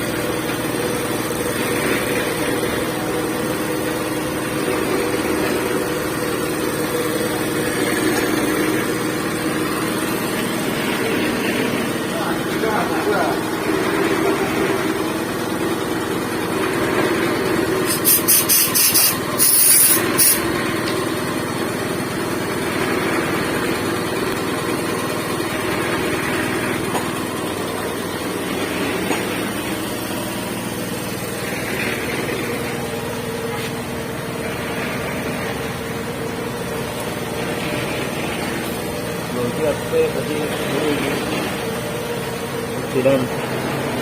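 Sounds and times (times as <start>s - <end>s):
concrete mixer engine drone: 0.0s - 44.0s
chopped hissing burst: 17.8s - 20.5s.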